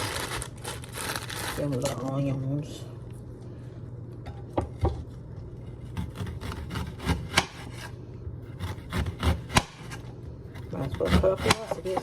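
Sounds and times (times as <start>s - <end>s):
knife slicing onion: 5.7s - 12.0s.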